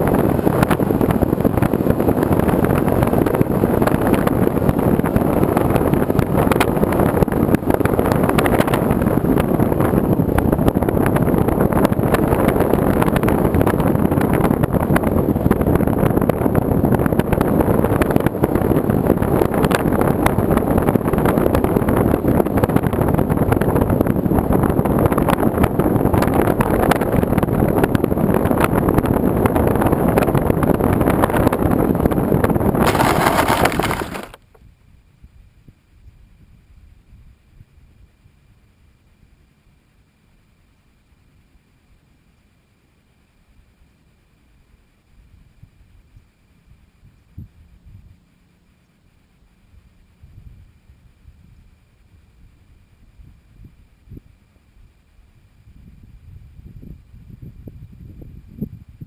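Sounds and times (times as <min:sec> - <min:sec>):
wind buffeting microphone: 0:00.0 - 0:34.4, 0:55.5 - 0:59.0.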